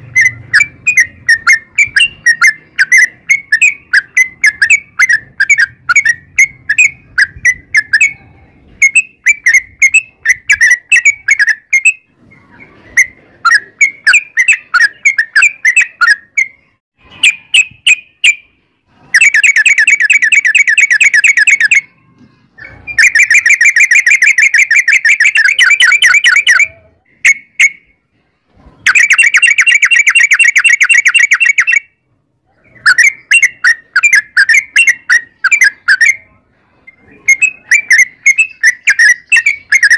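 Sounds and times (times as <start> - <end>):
bird chirping whistled phrases: 0.0 - 18.5, 19.1 - 28.0, 28.8 - 39.9
fast rattling bird trills: 0.0 - 18.5, 19.1 - 27.8, 28.8 - 31.9, 32.5 - 36.3, 36.9 - 39.9.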